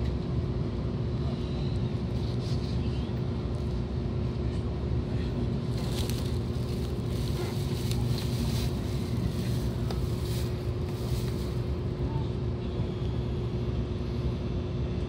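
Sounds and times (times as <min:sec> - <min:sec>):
steady train hum: 0:00.0 - 0:15.0
train cabin low rumble: 0:00.0 - 0:15.0.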